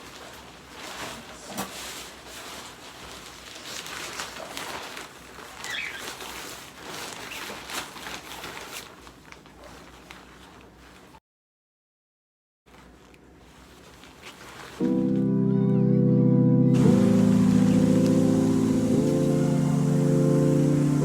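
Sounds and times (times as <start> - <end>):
rain falling: 16.8 - 21.0.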